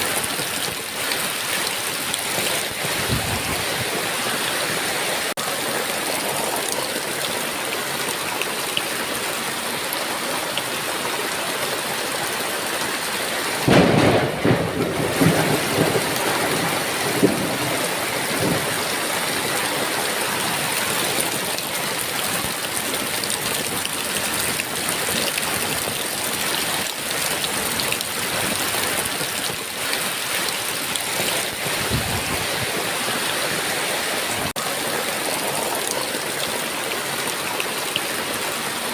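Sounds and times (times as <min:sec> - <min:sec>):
heavy rain: 0:00.0 - 0:38.9
thunder crack and rumble: 0:13.6 - 0:19.0.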